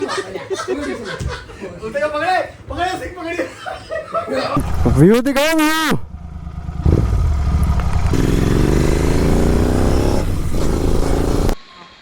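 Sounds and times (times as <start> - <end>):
motorcycle engine accelerating: 4.6 - 11.6.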